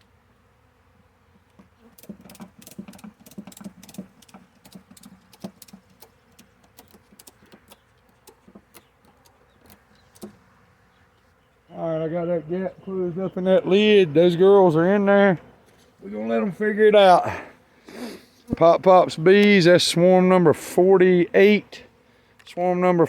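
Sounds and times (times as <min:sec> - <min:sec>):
ratchet strap clicking: 0:02.0 - 0:10.3.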